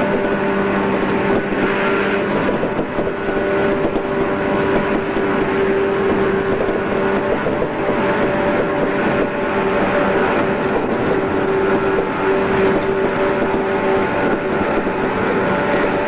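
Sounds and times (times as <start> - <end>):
electric train wheels rumbling: 0.0 - 16.0
train motors humming: 0.0 - 16.0.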